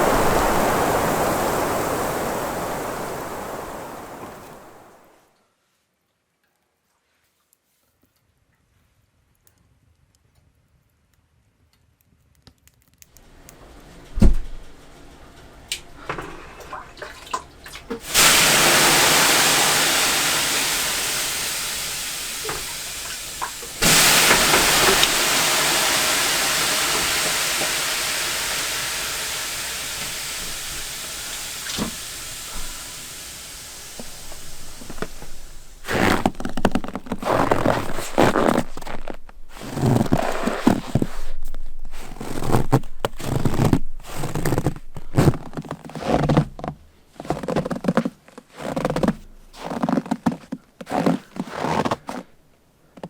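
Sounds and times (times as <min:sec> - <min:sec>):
steam hissing on hot stones: 0:00.0 - 0:05.2, 0:18.0 - 0:46.1
water thrown onto stones: 0:00.0 - 0:05.2, 0:15.7 - 0:45.2
rustling and knocks: 0:13.9 - 0:16.9.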